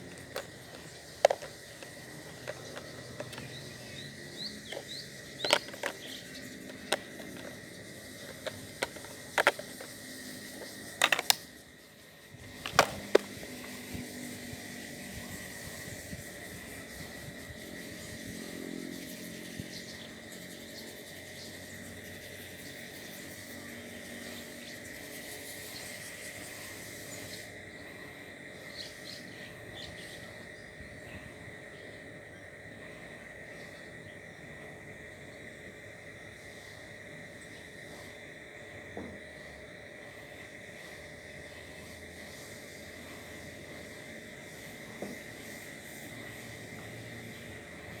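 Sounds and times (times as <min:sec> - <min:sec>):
insect drone: 0:00.0 - 0:48.0.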